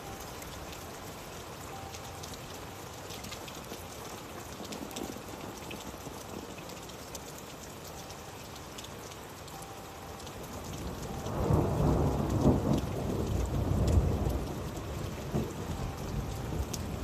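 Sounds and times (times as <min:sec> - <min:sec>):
steady rain: 0:00.0 - 0:17.0
thunder rumbling: 0:10.6 - 0:17.0.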